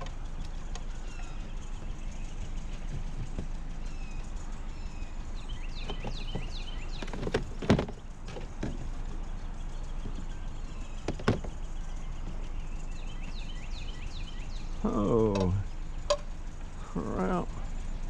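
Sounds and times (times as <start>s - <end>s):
junk knocking and thudding: 0.0s - 4.2s, 5.7s - 9.3s, 9.9s - 13.5s
low outdoor hum: 0.0s - 18.0s
small birds chirping: 0.0s - 18.0s.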